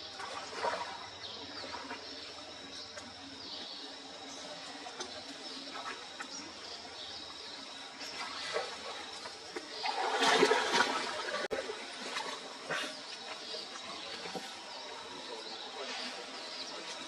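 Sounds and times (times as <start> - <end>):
water splashing and pouring: 0.0 - 3.1, 7.7 - 14.7.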